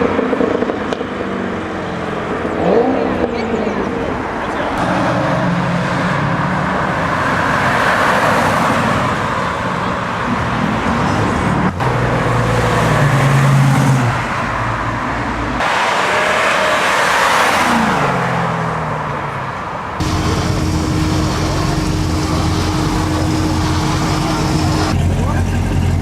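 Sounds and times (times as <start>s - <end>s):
car engines running: 0.0s - 26.0s.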